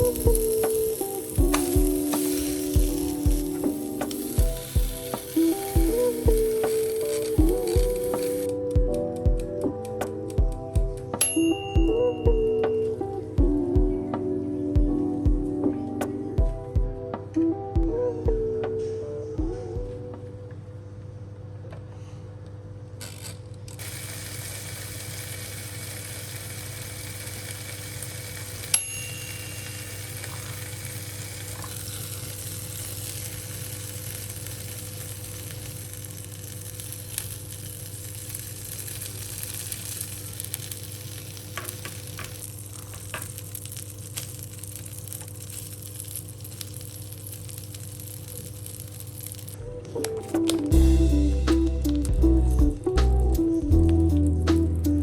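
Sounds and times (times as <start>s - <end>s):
sausages sizzling: 0.0s - 12.6s, 23.8s - 55.0s.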